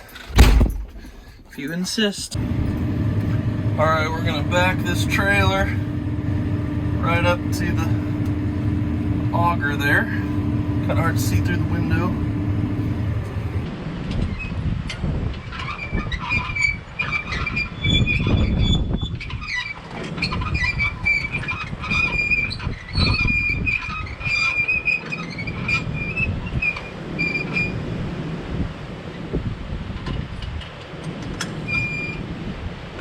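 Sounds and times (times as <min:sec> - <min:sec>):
trailer hitch rattling and clanking: 0:00.0 - 0:13.6
tractor engine running: 0:00.0 - 0:13.7.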